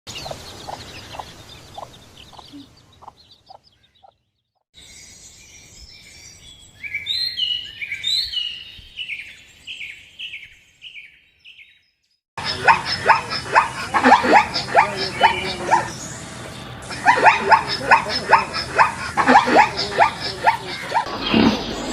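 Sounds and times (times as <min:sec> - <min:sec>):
bird short repeated calls: 0:12.4 - 0:16.1, 0:16.8 - 0:21.7.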